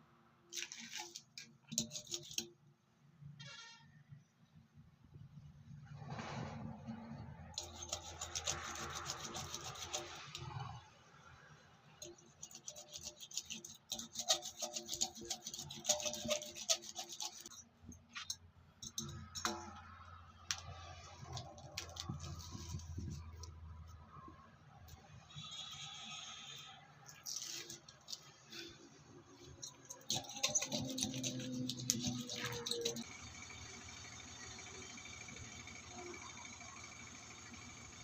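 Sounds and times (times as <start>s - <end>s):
rasping on rubber tyre: 7.6s - 10.8s, 12.0s - 19.8s, 21.2s - 23.5s, 29.5s - 33.1s.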